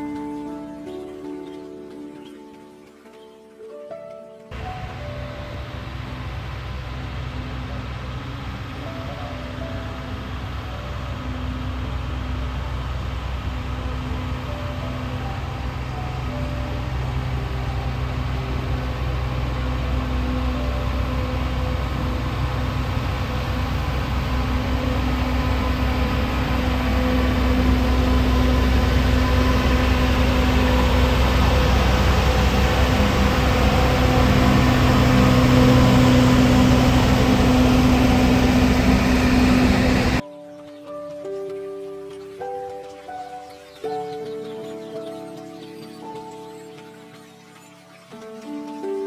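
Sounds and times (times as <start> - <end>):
train engine humming: 4.5 - 40.2.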